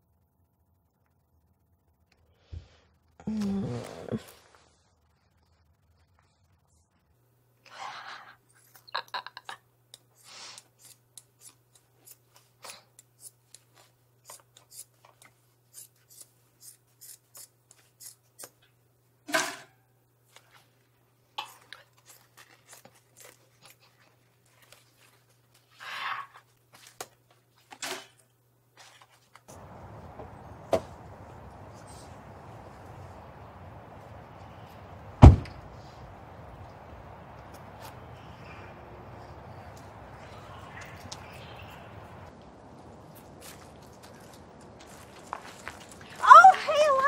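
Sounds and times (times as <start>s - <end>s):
faint low hum: 28.2s - 47.0s
outdoor rumble: 29.5s - 47.0s.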